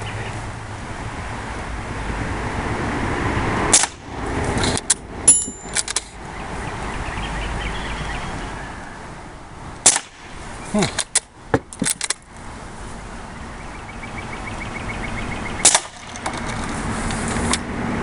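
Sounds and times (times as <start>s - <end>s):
road traffic rushing: 0.0s - 18.0s
sharp cracks: 3.7s - 5.0s, 9.8s - 12.3s, 15.6s - 16.6s
metallic clicks: 4.6s - 6.2s
brief metal clink: 5.3s - 6.0s.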